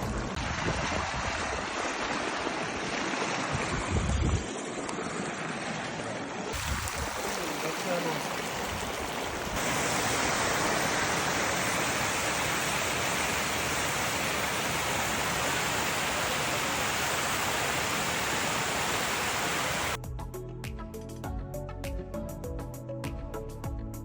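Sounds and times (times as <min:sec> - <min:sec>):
flowing river water: 0:00.0 - 0:20.0
music with steady beat: 0:20.0 - 0:24.0.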